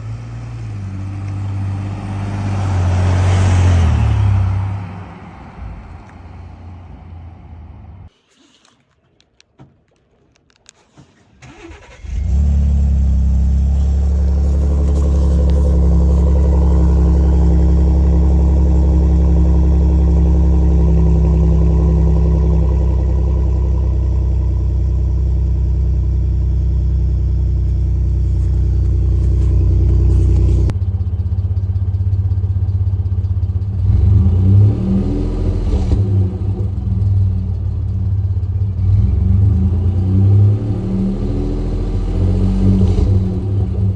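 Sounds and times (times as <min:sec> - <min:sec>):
truck engine starting and running: 0:00.0 - 0:43.9.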